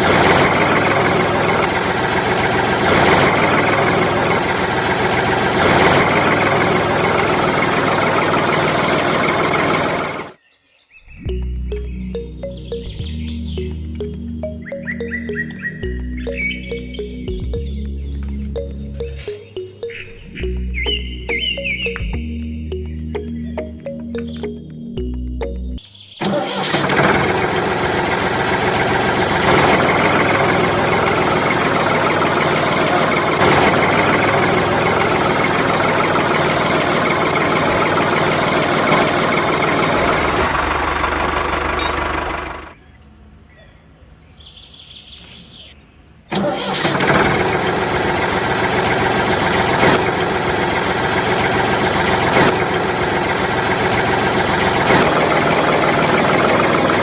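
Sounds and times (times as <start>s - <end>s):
motor running loudly: 0.0s - 10.4s, 26.7s - 42.8s, 46.3s - 57.0s.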